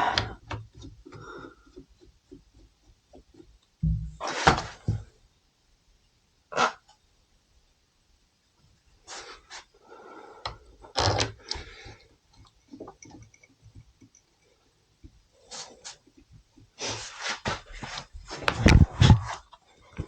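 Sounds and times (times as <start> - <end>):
metal tools knocking and clinking: 12.4 - 14.5.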